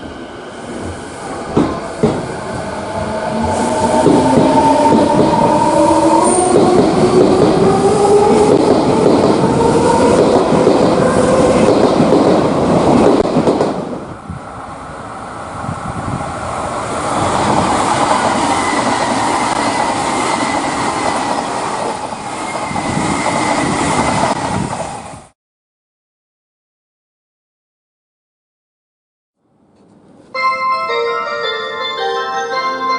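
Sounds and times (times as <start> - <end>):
electric train running on rails: 0.0 - 25.3.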